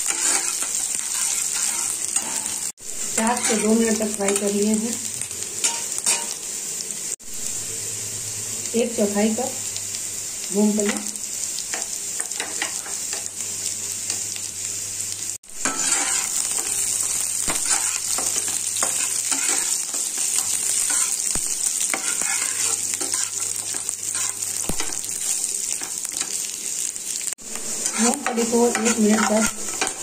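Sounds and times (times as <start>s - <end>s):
metal spatula scraping pan: 0.0s - 2.7s, 15.6s - 16.8s, 17.6s - 21.2s, 21.9s - 24.4s, 27.8s - 30.0s
food sizzling in oil: 0.0s - 30.0s.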